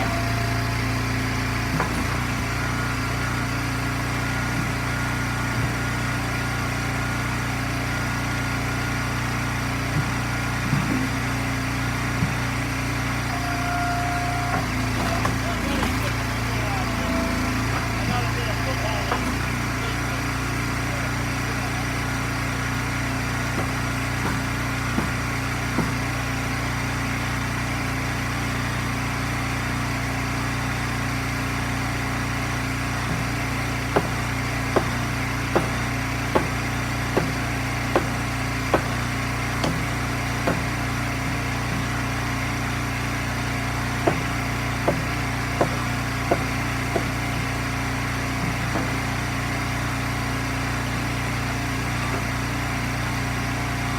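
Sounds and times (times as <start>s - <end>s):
gas engine running: 0.0s - 53.9s
sharp knocks: 23.5s - 26.1s, 34.8s - 36.6s, 37.2s - 39.0s, 39.6s - 40.8s, 44.0s - 47.2s, 48.4s - 49.1s.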